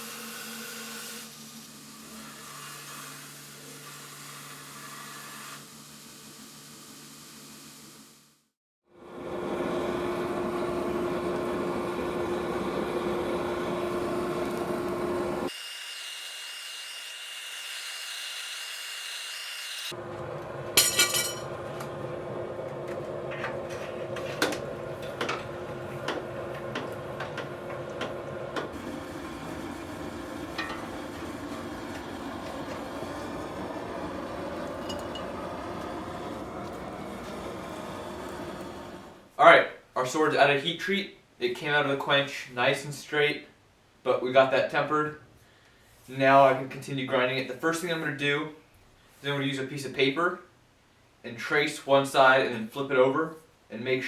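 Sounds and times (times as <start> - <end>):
machine humming: 20.0 - 39.3.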